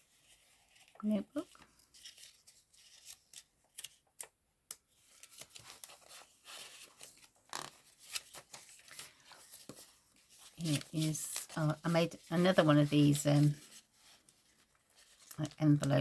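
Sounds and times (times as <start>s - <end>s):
paper pages rustling: 0.0s - 16.0s.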